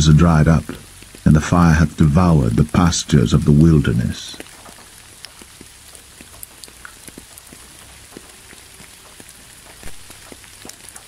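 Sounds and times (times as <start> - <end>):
rain falling: 0.0 - 11.0
raindrops ticking on a surface: 0.0 - 11.0.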